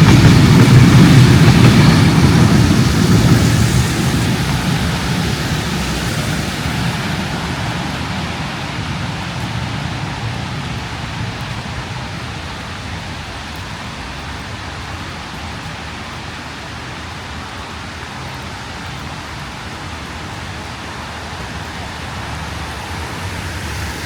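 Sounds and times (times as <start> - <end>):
low traffic rumble: 0.0 - 24.0
steady rain on street: 0.0 - 24.0.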